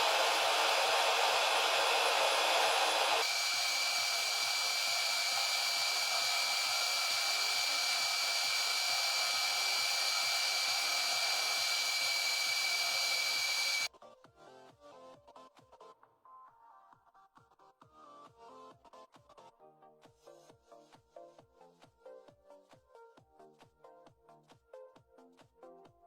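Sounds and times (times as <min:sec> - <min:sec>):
power tool whirring: 0:00.0 - 0:13.9.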